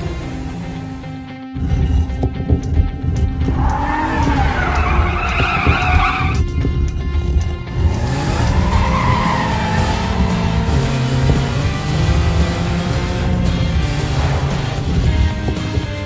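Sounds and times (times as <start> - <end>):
background music: 0.0 - 16.0
engine revving: 0.0 - 16.0
cartoon tyre screech: 3.5 - 6.4, 7.9 - 12.1.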